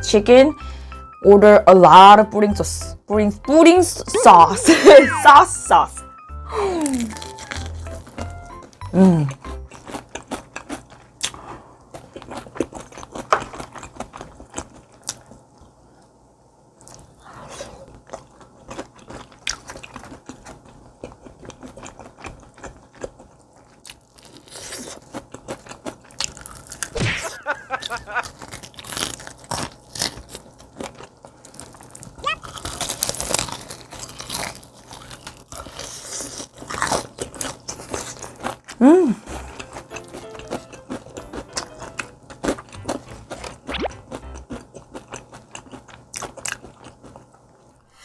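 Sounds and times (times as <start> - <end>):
crunching fried chicken: 6.7 - 15.6, 16.8 - 47.4.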